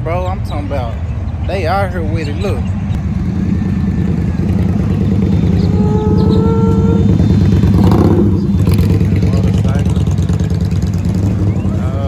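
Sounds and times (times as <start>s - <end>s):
vehicle engine rumbling: 0.0s - 12.0s
higher engine note rising: 3.0s - 12.0s.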